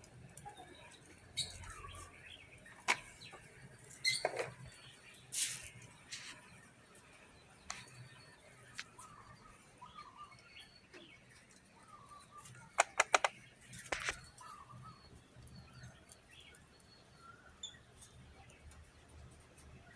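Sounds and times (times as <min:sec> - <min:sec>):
sharp clicks: 0:12.8 - 0:14.3.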